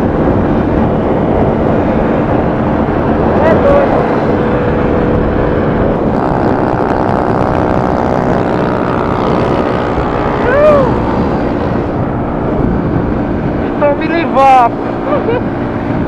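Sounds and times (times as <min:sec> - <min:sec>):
motorcycle engines running: 0:00.0 - 0:16.0
person shouting: 0:10.4 - 0:11.0.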